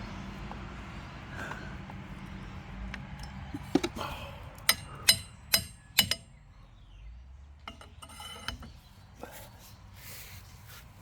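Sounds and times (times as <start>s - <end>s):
metal clinking on metal: 4.6s - 6.3s.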